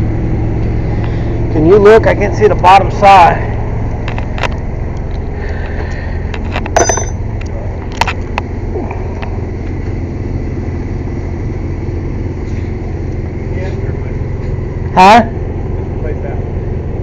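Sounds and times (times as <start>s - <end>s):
air compressor droning: 0.0s - 17.0s
metallic tool clinks: 6.8s - 7.2s.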